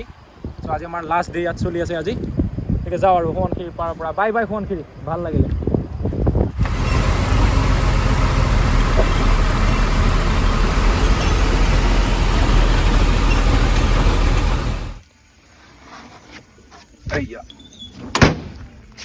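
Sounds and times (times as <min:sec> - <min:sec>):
moving vehicle road noise: 0:06.4 - 0:15.0.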